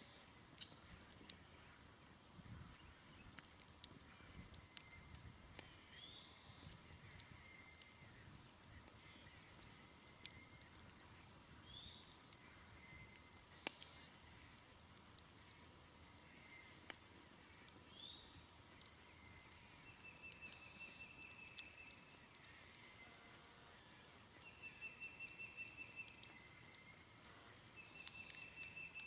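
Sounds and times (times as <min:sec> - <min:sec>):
smoldering campfire crackling: 0:00.0 - 0:29.0
bird chirping: 0:17.8 - 0:29.0.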